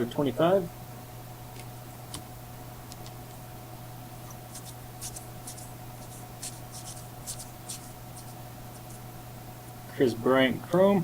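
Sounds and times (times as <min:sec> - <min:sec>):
steady low hum: 0:00.0 - 0:11.0
trading cards rustling: 0:04.4 - 0:09.0.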